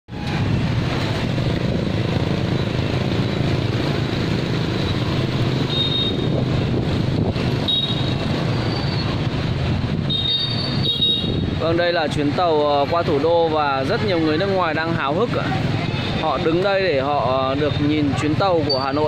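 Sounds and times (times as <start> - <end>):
high-pitched wheel squeals: 7.7 - 9.2, 10.2 - 11.3.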